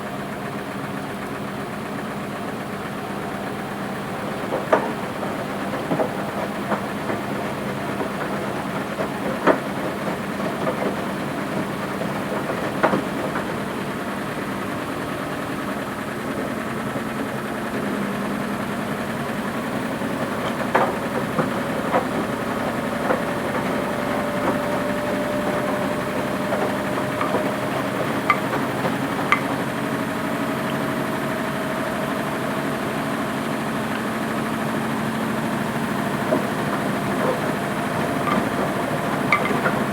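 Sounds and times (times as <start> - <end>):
washing machine motor humming: 0.0 - 39.9
drum clicks and knocks: 19.9 - 30.2, 35.6 - 39.9.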